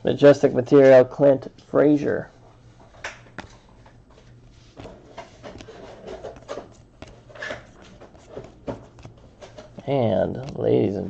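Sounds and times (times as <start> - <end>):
cards rubbing and sliding: 2.8 - 11.0.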